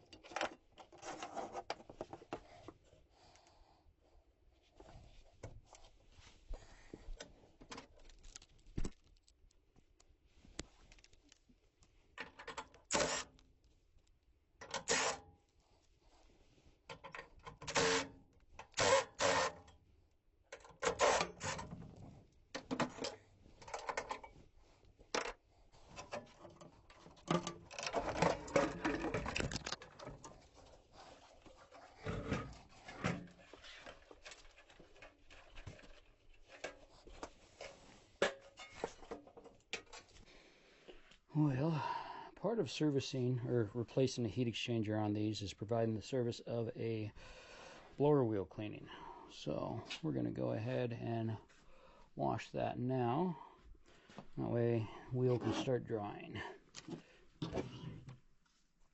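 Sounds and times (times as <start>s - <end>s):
hand tools and metal parts clattering: 12.2s - 13.3s, 20.5s - 24.5s, 25.1s - 40.2s.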